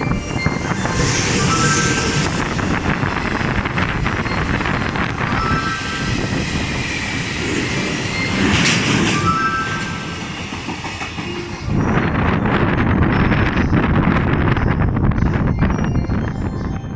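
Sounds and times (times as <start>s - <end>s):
train wheels clattering on rails: 6.0s - 14.8s.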